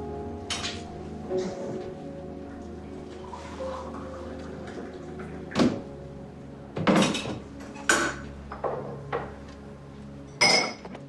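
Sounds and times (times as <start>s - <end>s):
quiet background music: 0.0s - 11.0s
dishes clinking: 6.8s - 9.4s, 10.4s - 11.0s.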